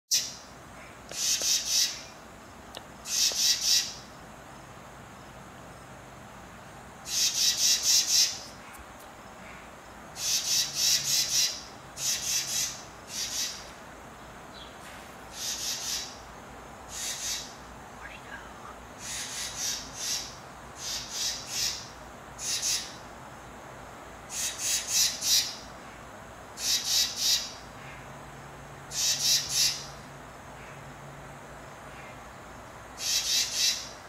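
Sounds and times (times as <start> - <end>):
bird chattering calls: 1.1 - 2.2, 3.0 - 4.1, 7.0 - 8.8, 10.2 - 13.7, 15.3 - 16.3, 16.9 - 17.6, 19.0 - 23.0, 24.3 - 25.7, 26.6 - 28.1, 28.9 - 30.0, 33.0 - 34.0.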